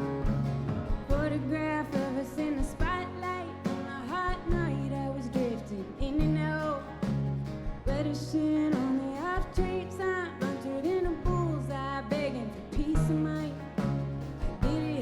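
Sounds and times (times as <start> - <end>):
band playing guitars bass and drums: 0.0 - 15.0
woman singing: 1.0 - 15.0.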